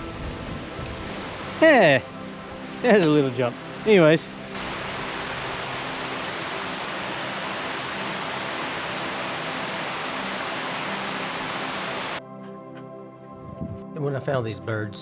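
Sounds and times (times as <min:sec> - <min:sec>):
water pouring down waterfall: 0:02.8 - 0:12.2.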